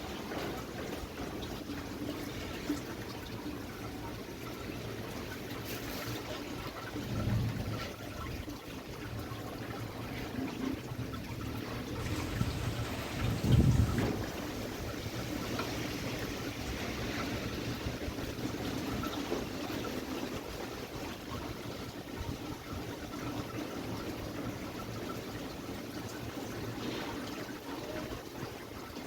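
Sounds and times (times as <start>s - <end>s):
wind buffeting microphone: 6.9s - 19.2s
gusty wind: 10.8s - 19.1s.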